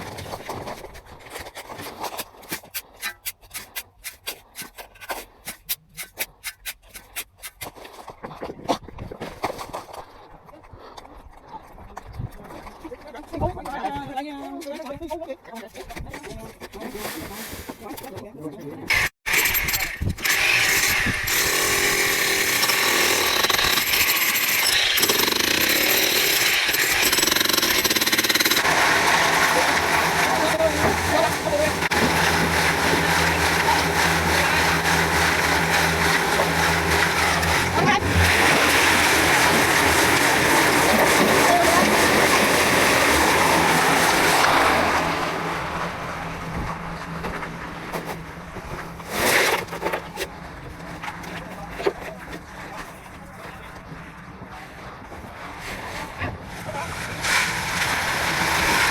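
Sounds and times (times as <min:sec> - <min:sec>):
rapid mechanical hammering: 0:18.9 - 0:28.8
engine running: 0:28.6 - 0:49.1.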